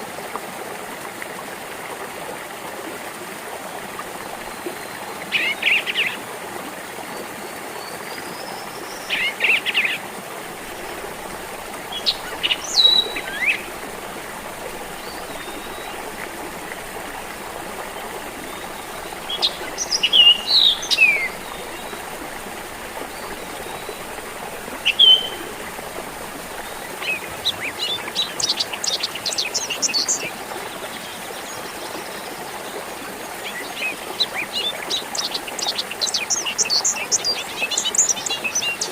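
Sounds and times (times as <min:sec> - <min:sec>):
stream trickling: 0:00.0 - 0:38.9
birds chirping and whistling: 0:10.6 - 0:27.2.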